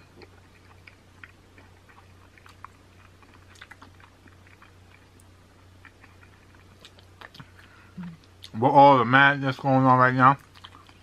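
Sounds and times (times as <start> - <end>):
low steady hum: 0.0 - 11.0
sticky clicks of eating: 0.1 - 8.6
wet chewing: 0.1 - 8.6, 10.4 - 11.0.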